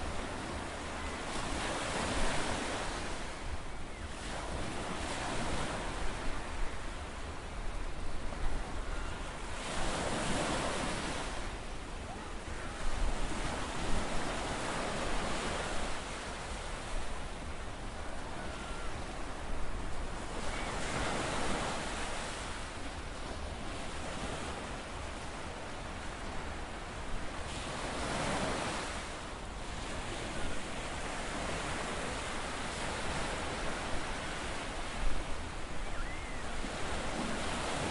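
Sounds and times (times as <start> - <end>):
ocean waves washing in: 27.4 - 37.9.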